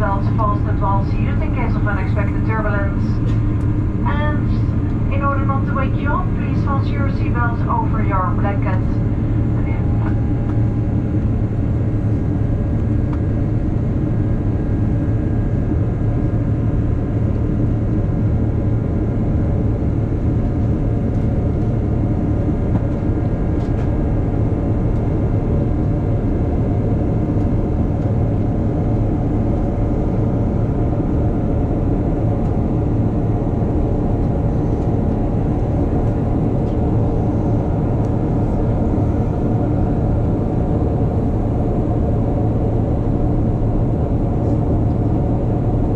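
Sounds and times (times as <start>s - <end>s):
faint steady tones: 0.0s - 12.2s
airplane cabin engine drone: 0.0s - 45.9s.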